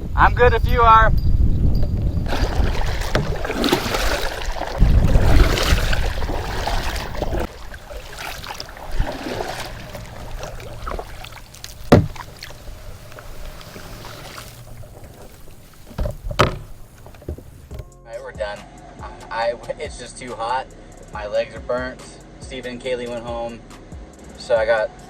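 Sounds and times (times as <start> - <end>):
low water rush: 0.0 - 17.8
sharp knock: 11.9 - 12.2.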